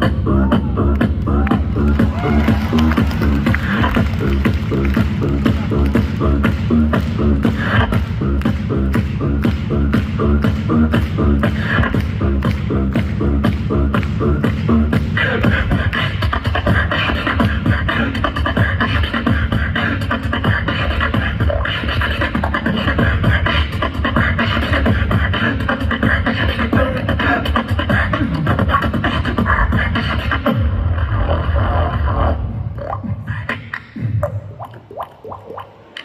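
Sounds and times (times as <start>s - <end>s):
low hummed bass tones: 0.0s - 16.0s
beatboxing vocal percussion: 0.0s - 36.0s.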